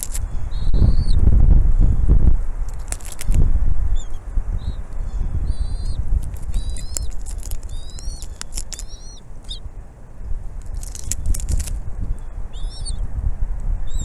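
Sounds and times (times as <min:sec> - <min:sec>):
sharp clicks: 0:00.0 - 0:00.2, 0:02.7 - 0:03.4, 0:05.8 - 0:09.6, 0:10.6 - 0:12.2
steady low rumble: 0:00.0 - 0:14.0
eagles chirping calls: 0:00.3 - 0:01.2, 0:03.9 - 0:09.8, 0:12.1 - 0:13.0.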